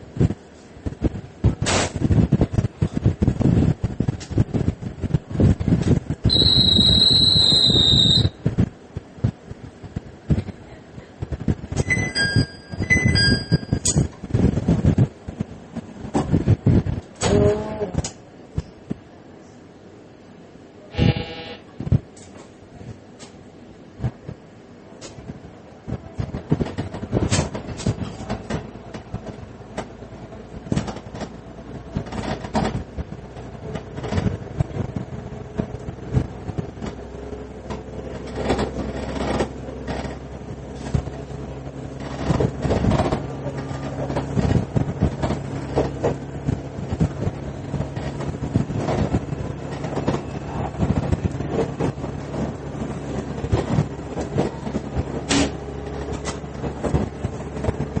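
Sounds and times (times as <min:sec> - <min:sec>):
diesel engine droning: 0:00.0 - 0:15.0, 0:24.6 - 0:58.0
wheels knocking over rail joints: 0:26.2 - 0:58.0.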